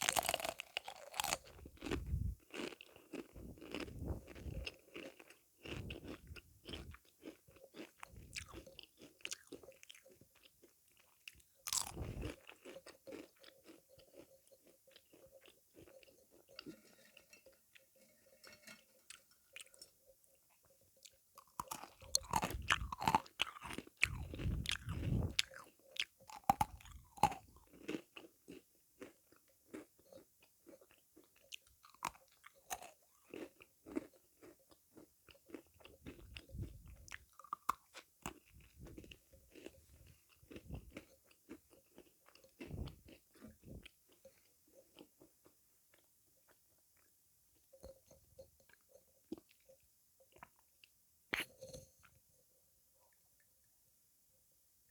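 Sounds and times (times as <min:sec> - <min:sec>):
crunchy sweets chewing: 0:00.0 - 0:17.3, 0:21.0 - 0:46.1.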